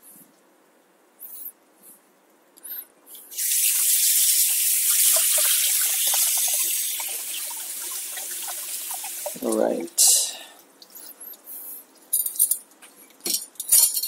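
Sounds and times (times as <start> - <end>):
tap water running: 3.3 - 10.0.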